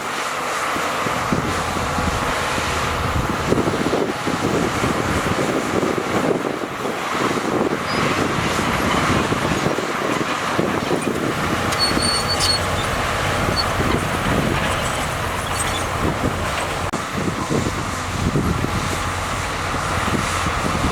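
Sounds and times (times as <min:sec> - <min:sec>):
bulldozer diesel engine: 0:00.0 - 0:20.9
high squeal: 0:11.6 - 0:16.8.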